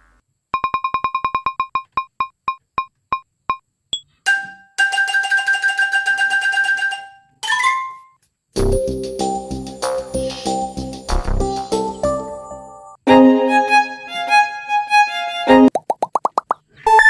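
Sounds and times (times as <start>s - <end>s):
keyboard music: 8.6s - 15.7s.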